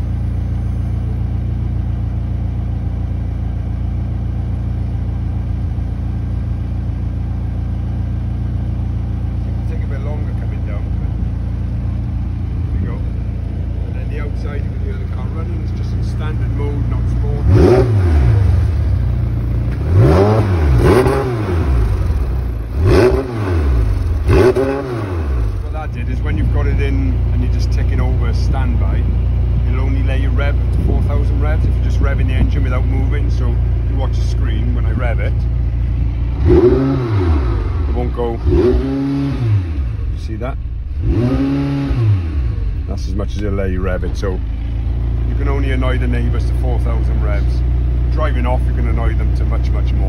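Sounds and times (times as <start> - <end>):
car engine idling: 0.0 - 50.0.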